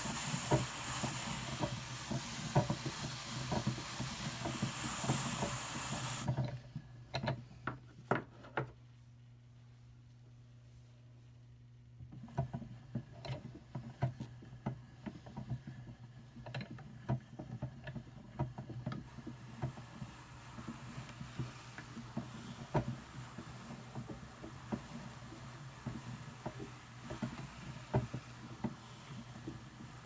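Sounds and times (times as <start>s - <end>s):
fibre brushing hiss: 0.0s - 6.4s, 19.1s - 30.0s
drum carder clicking: 18.9s - 30.0s.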